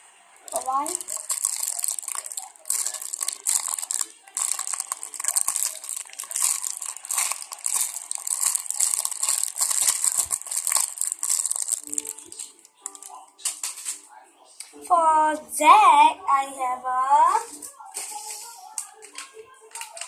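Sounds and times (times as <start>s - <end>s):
packaging crinkling: 0.5s - 14.0s.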